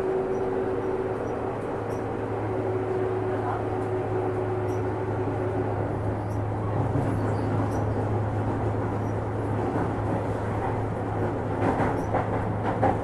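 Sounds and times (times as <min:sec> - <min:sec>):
electric train hum and rumble: 0:00.0 - 0:13.0
wheels clicking over rail joints: 0:06.3 - 0:13.0.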